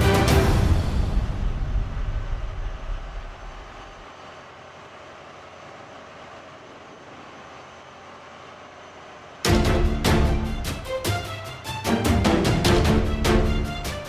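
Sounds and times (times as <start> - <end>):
background music: 0.0 - 2.6, 9.5 - 14.0
vehicle running: 9.4 - 14.0.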